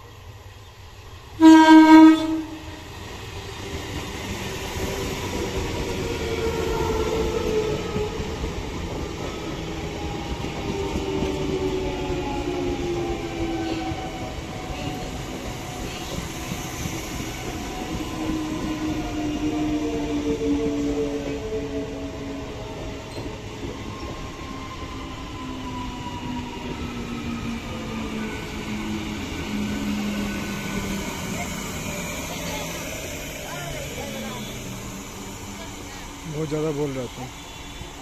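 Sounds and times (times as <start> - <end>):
train running past rumbling: 0.0 - 38.0
train whine falling in pitch: 1.4 - 2.7
train horn blast: 1.4 - 2.8.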